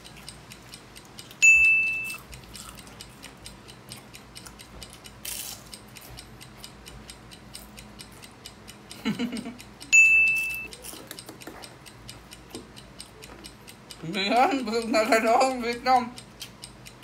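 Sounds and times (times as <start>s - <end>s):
timer ticking fast: 0.0s - 17.0s
high beep: 1.4s - 2.2s, 10.0s - 10.7s.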